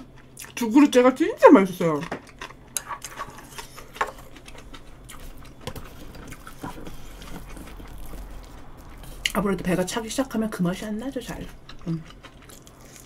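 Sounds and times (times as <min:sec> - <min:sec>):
person chewing wetly: 0:00.0 - 0:01.0, 0:01.9 - 0:09.4, 0:11.4 - 0:13.0.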